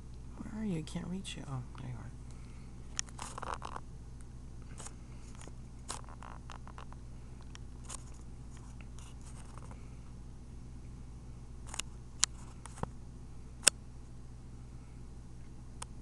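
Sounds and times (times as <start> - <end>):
steady low hum: 0.0 - 16.0
handling clicks and scrapes: 2.9 - 3.8.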